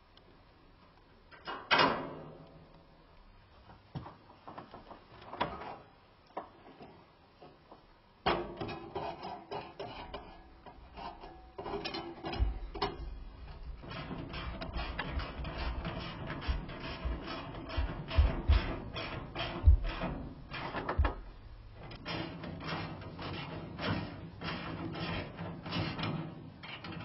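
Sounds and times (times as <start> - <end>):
metal clattering and rattling: 8.3 - 27.0
knocks: 13.8 - 21.4.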